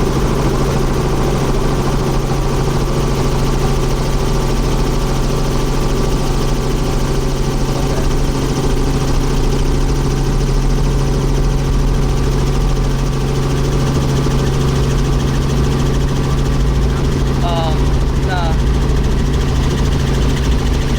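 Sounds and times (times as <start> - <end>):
helicopter engine and rotor noise: 0.0 - 20.9.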